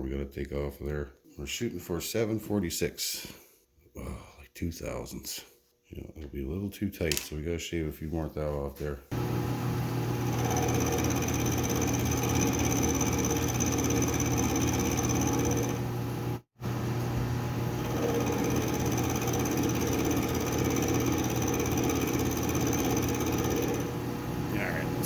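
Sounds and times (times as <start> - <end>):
metal lathe whining: 9.2 - 16.4, 17.6 - 25.0.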